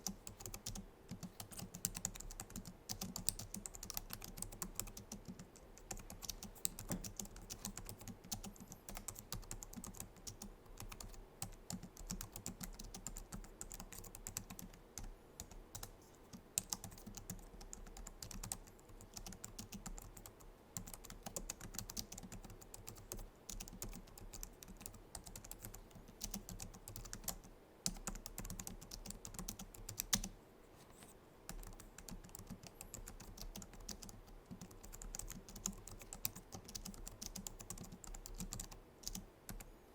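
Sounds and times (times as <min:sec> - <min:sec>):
keyboard typing clicks: 0:00.0 - 0:15.9, 0:31.5 - 0:39.7.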